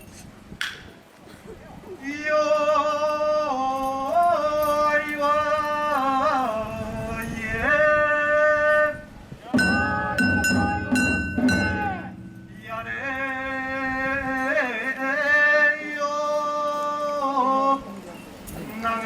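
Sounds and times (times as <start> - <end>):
drums: 9.5 - 13.2
clanging cymbals: 9.6 - 15.0.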